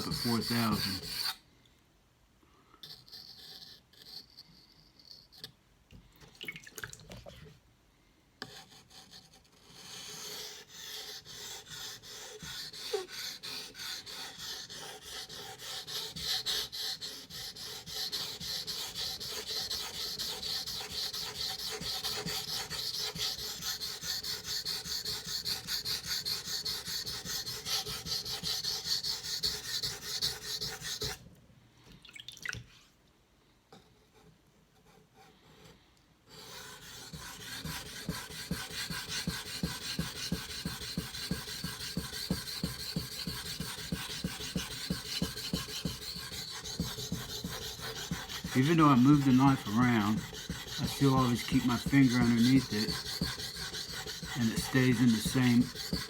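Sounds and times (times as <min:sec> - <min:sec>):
knife scraping on wet whetstone: 0:00.0 - 0:01.4, 0:11.4 - 0:31.2, 0:36.4 - 0:56.0.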